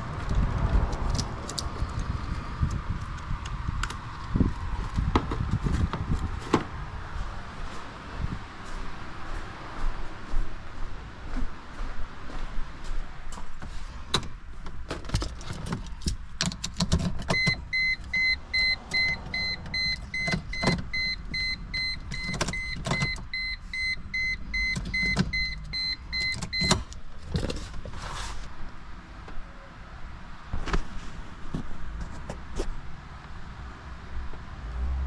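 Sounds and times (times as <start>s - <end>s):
sharp clicks and knocks: 14.1s - 17.6s
car warning chime beeping: 17.3s - 26.9s.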